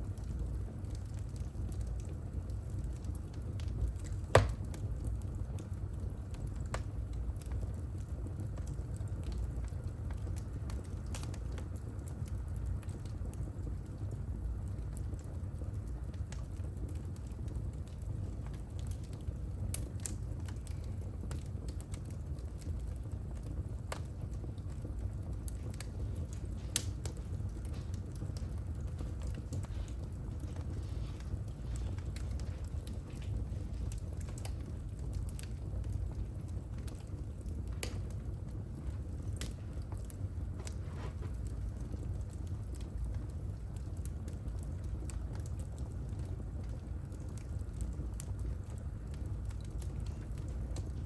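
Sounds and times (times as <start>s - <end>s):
low rumble of flames: 0.0s - 51.0s
wood fire hissing and crackling: 0.0s - 51.0s
fire popping sharply: 3.7s - 5.1s, 22.6s - 46.0s.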